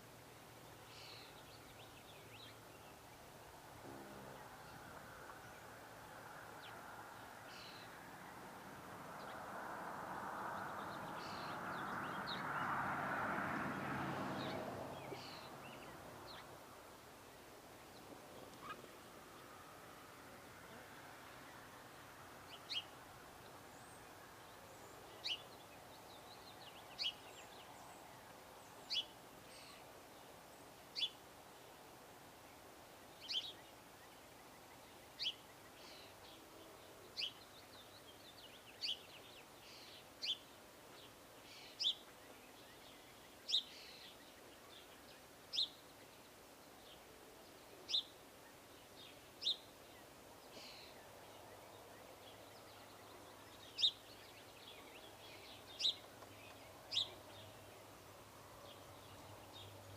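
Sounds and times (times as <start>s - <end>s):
faint background hiss: 0.0s - 59.9s
songbird call notes: 0.6s - 8.5s, 17.3s - 19.7s, 22.5s - 30.3s, 30.9s - 31.2s, 33.0s - 59.9s.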